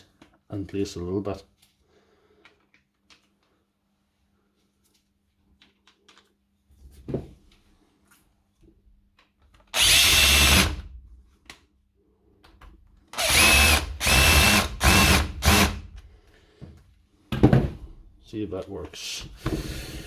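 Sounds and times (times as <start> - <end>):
power screwdriver whirring: 9.8 - 10.8, 13.2 - 15.9.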